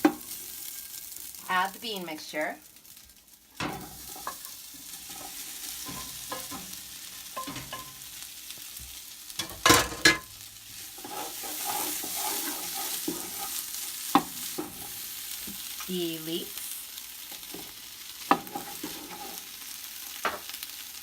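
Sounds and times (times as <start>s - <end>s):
steady sizzle: 0.0s - 21.0s
stirring and scraping in a pot: 2.7s - 15.8s, 17.0s - 20.6s.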